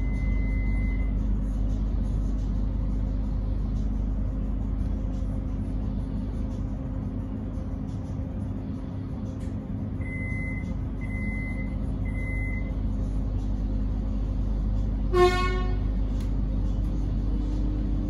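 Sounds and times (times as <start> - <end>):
low hum of standing train: 0.0 - 18.0
short train horn toot: 15.1 - 15.9.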